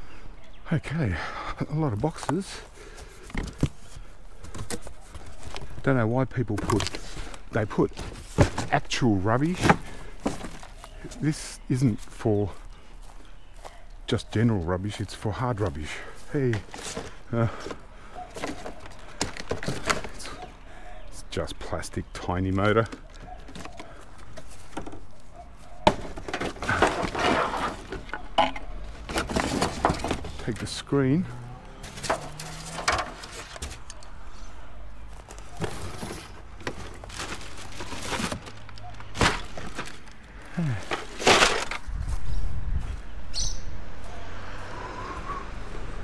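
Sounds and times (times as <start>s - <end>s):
plastic rattling and scraping: 2.1s - 11.2s, 16.4s - 20.5s, 22.5s - 30.8s, 31.8s - 34.2s, 35.1s - 42.0s
hard plastic cracking: 16.6s - 20.4s, 35.2s - 41.9s.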